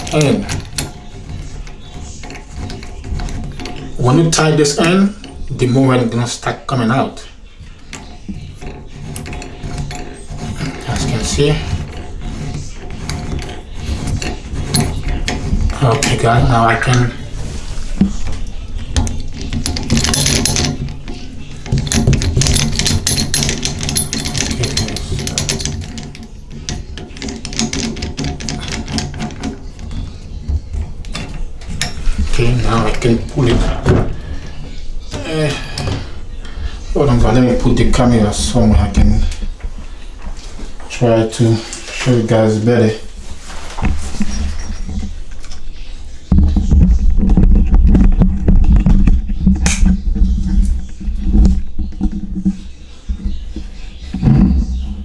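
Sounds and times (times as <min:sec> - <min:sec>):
tool clicking and rattling: 0:00.0 - 0:55.0
microphone rubbing rumble: 0:43.9 - 0:55.0.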